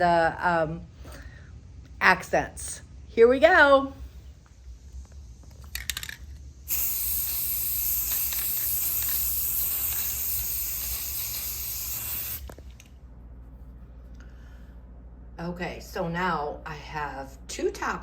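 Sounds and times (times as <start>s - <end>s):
spray paint can hissing: 5.0s - 12.6s.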